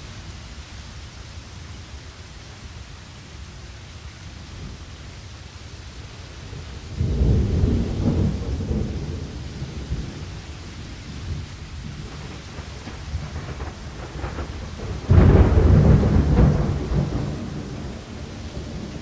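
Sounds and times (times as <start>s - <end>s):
steady rain: 0.0s - 19.0s
thunder rumbling: 6.5s - 19.0s.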